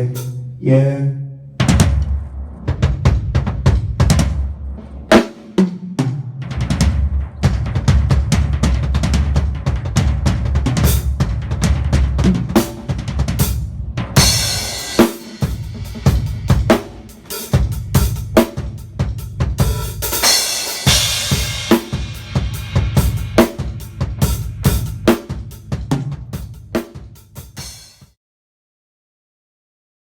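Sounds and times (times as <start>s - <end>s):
drum kit playing: 0.0s - 0.7s, 1.6s - 28.1s.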